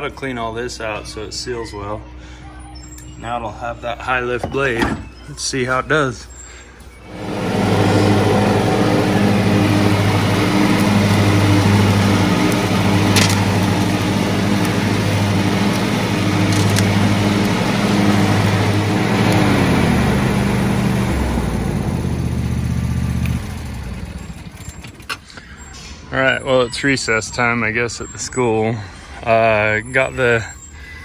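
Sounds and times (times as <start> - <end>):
riding mower engine running: 2.9 - 26.3.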